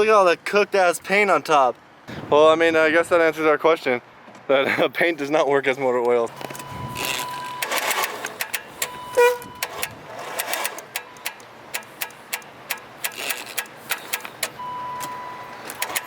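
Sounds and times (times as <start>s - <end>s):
steady beep tone: 6.5s - 9.9s, 10.7s - 12.8s, 13.9s - 16.0s
rapid ticking clicks: 7.6s - 14.6s, 15.7s - 16.0s.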